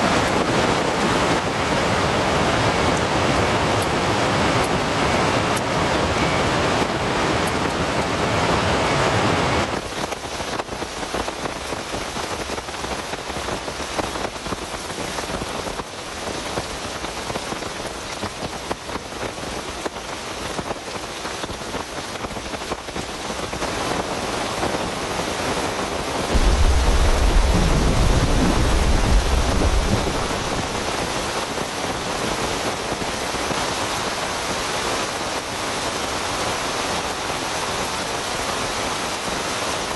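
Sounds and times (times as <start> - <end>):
heavy rain falling: 0.0 - 39.9
low rumble of thunder: 26.3 - 31.5.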